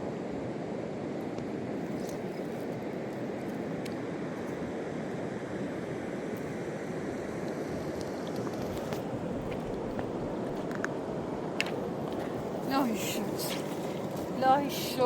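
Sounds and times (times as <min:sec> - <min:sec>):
river water rushing: 0:08.8 - 0:15.0.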